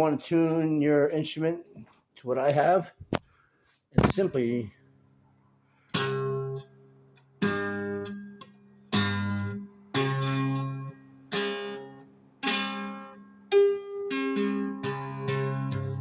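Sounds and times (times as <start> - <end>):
twelve-string guitar strums: 5.9 - 16.0.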